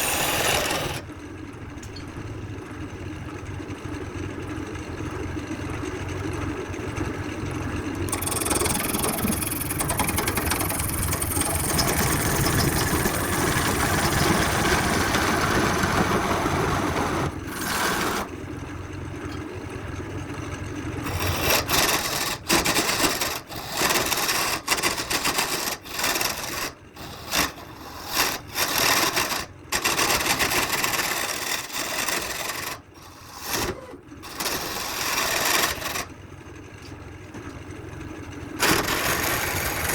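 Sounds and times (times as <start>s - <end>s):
turning tool scraping wood: 0.0s - 1.1s, 8.1s - 18.4s, 21.0s - 36.1s, 38.6s - 39.9s
wood lathe running: 0.0s - 1.1s, 8.1s - 18.4s, 21.0s - 36.1s, 38.6s - 39.9s.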